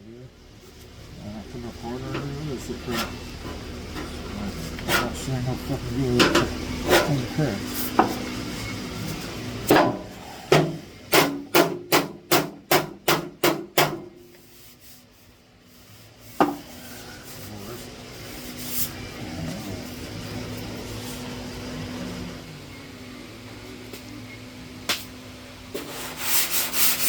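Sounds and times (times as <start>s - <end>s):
sharp hammer-like knocks: 9.7s - 14.1s.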